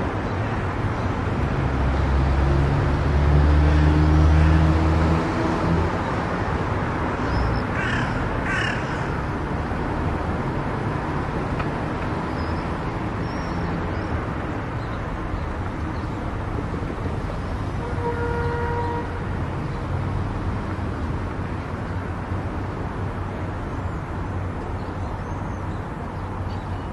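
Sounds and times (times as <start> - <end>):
road traffic noise: 0.0 - 26.9
crow cawing: 7.7 - 9.3.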